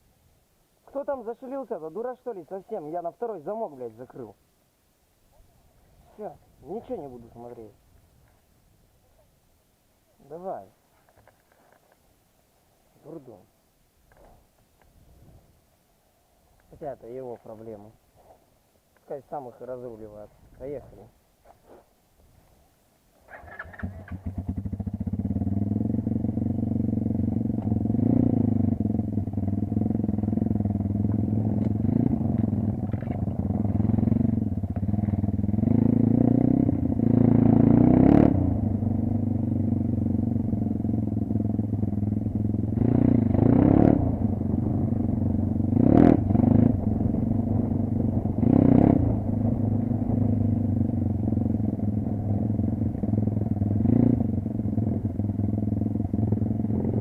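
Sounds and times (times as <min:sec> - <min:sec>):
vehicle engine revving: 0:23.3 - 0:57.0.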